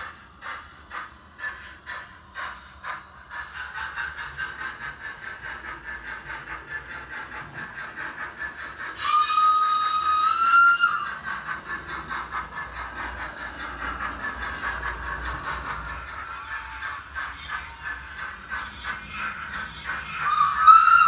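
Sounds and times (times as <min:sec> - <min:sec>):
model steam locomotive chuffing: 0:00.0 - 0:21.0
locomotive whistle: 0:09.0 - 0:11.2, 0:20.2 - 0:21.0.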